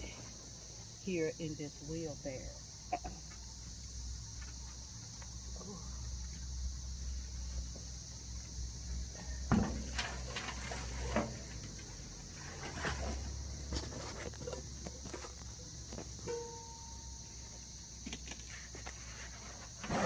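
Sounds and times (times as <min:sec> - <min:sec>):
cicadas droning: 0:00.0 - 0:20.0
soil tipped into wheelbarrow: 0:09.5 - 0:16.6.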